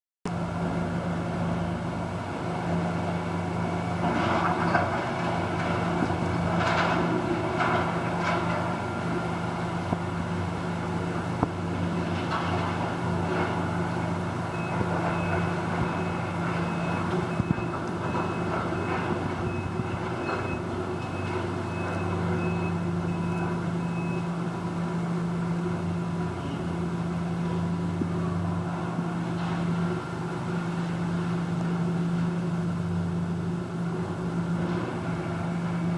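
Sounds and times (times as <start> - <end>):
diesel machinery engine: 0.3 - 35.9
reversing alarm beeping: 14.5 - 24.5.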